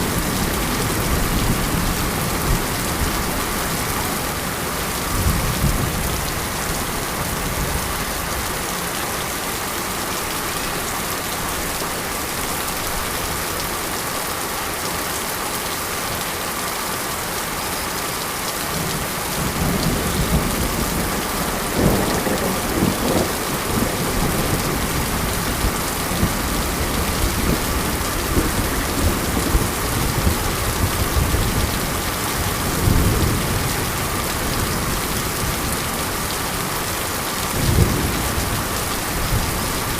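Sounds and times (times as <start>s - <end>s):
rain falling: 0.0s - 39.9s
low rumbles of thunder: 19.0s - 35.8s, 37.5s - 39.9s.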